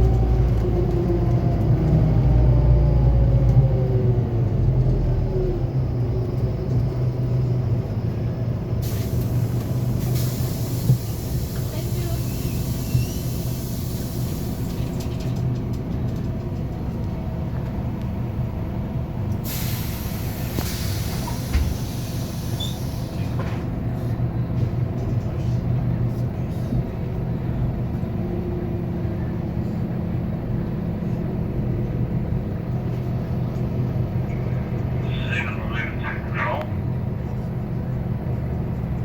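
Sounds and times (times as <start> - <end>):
diesel bus engine running: 0.0 - 39.0
air brake hiss: 8.8 - 14.8, 19.4 - 23.3.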